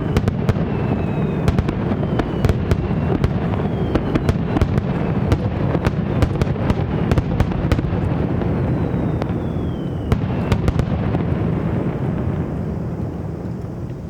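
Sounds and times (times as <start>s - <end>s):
thin falling whistle: 0.0s - 5.0s, 8.5s - 10.7s
fireworks bursting: 0.0s - 14.0s
sharp cracks and pops: 12.5s - 14.0s.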